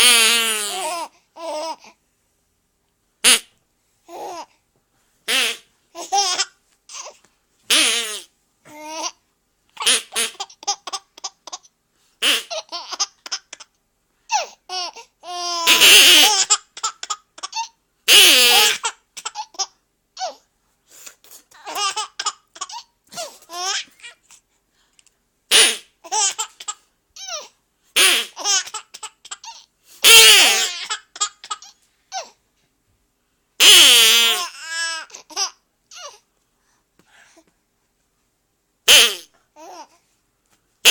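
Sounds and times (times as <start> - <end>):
toy duck quacks: 3.2 - 3.5, 5.3 - 5.7, 7.7 - 8.3, 9.8 - 10.7, 12.2 - 13.4, 15.5 - 19.3, 25.5 - 26.3, 28.0 - 29.4, 30.0 - 31.6, 33.6 - 34.6, 38.9 - 39.3
baby giggling and laughing: 5.3 - 9.2, 9.8 - 13.7, 21.6 - 24.2.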